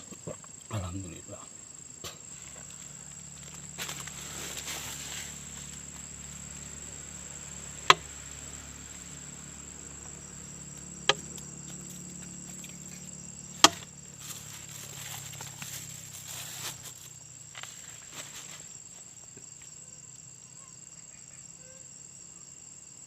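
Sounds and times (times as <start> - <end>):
insects droning: 0.0 - 23.0
sharp knocks: 7.8 - 8.2, 11.0 - 11.4, 13.6 - 13.9.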